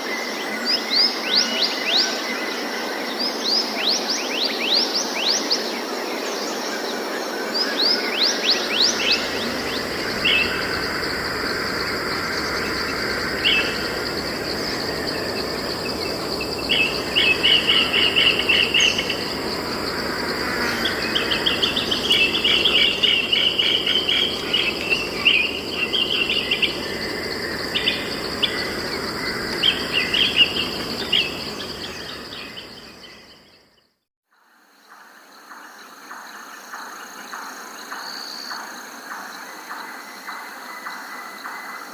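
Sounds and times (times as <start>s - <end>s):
insect drone: 0.0s - 41.9s
constant hiss: 4.9s - 33.6s
birds chirping: 7.8s - 33.8s
rapid falling whistles: 8.6s - 33.3s.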